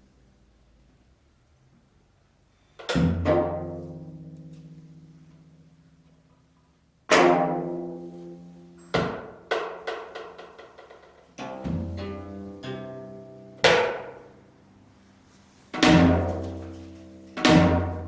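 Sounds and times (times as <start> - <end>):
plucked zither notes: 3.2 - 5.6, 7.1 - 8.9, 11.4 - 14.4.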